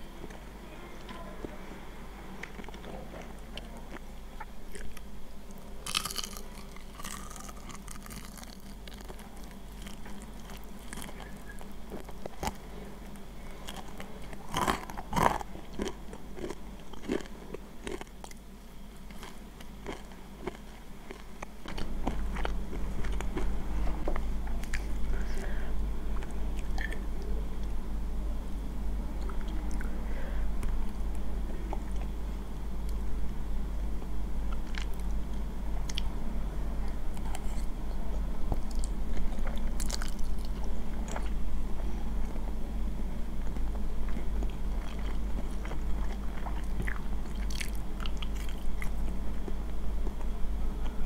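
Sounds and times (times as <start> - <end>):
crunching crispy fried chicken: 5.8 - 18.4, 19.1 - 23.5, 38.6 - 41.4.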